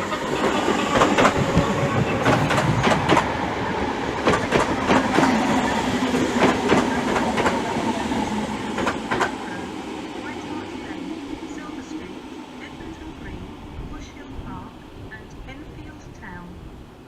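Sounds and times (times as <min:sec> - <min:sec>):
train wheels clattering over rail joints: 0:00.0 - 0:03.4, 0:04.2 - 0:07.7
steady train rumble: 0:00.0 - 0:17.0.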